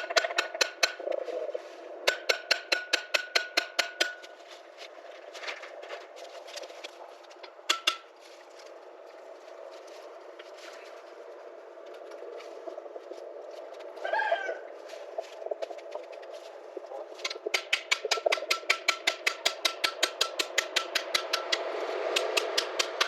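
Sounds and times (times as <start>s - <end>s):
hammer striking metal: 0.0s - 1.1s, 2.0s - 4.3s, 7.7s - 8.1s, 17.2s - 23.0s.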